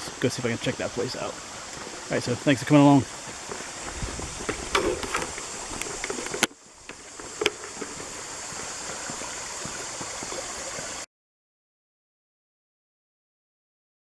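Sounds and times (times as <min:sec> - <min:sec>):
sharp click: 0:03.9 - 0:06.6.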